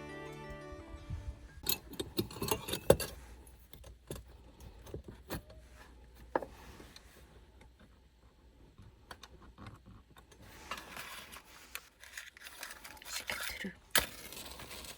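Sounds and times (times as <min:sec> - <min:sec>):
background music: 0:00.0 - 0:01.7.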